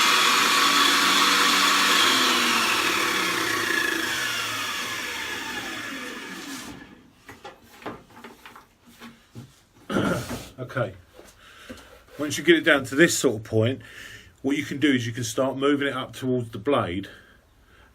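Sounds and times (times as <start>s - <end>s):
table saw blade winding down: 0.0s - 7.0s.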